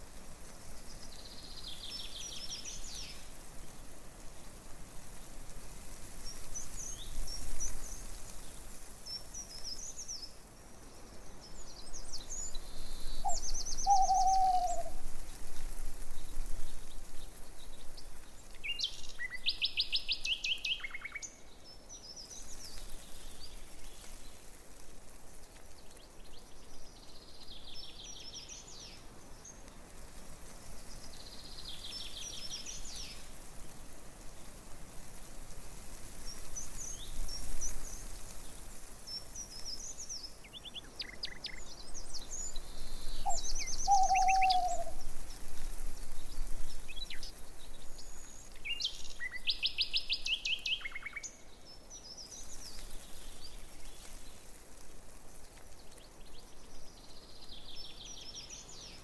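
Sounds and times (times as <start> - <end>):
outdoor hiss: 0.0 - 59.0
songbirds chirping and trilling: 8.8 - 15.0, 36.3 - 54.6.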